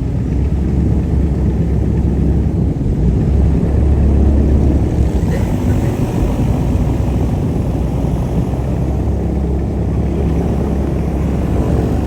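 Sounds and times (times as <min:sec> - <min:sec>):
airboat engine drone: 0:00.0 - 0:12.0.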